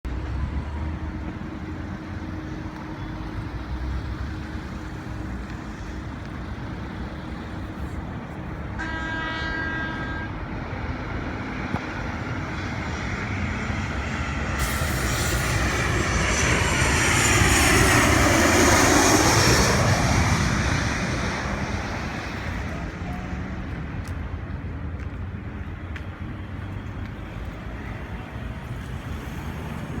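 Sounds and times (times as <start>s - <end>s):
jet engine whine: 0.1s - 30.0s
jet passing overhead: 10.1s - 24.0s.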